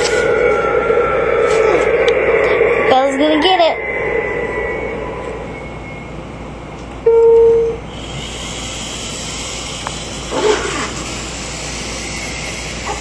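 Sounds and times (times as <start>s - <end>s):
steady hiss: 7.9s - 13.0s.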